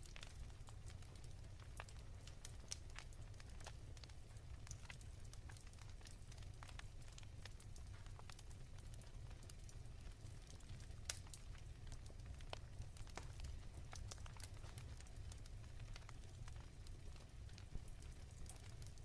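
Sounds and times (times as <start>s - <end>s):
low fire rumble: 0.0s - 19.0s
wood fire crackling: 0.0s - 19.0s.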